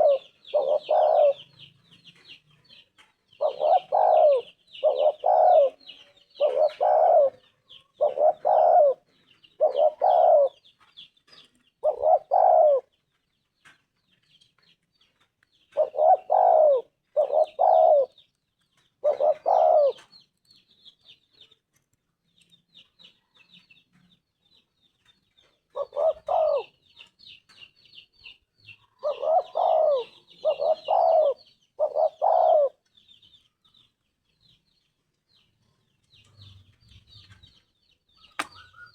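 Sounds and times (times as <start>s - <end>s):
dove cooing: 0.0s - 2.3s, 3.4s - 10.7s, 11.8s - 12.9s, 15.7s - 18.2s, 19.0s - 20.1s, 25.7s - 26.8s, 28.9s - 32.8s.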